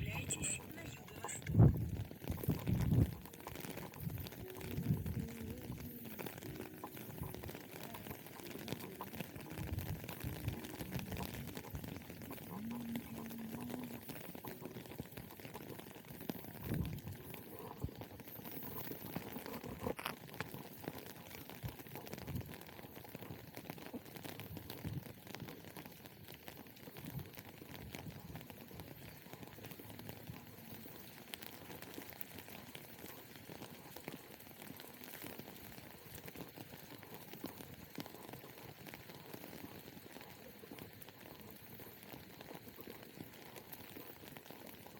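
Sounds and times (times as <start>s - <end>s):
rain pattering: 0.0s - 44.9s.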